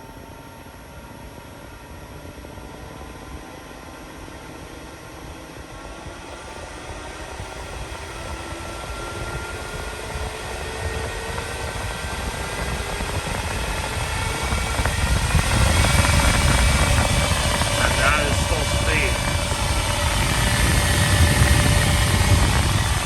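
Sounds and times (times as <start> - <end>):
electric fan whirring: 12.4 - 23.0.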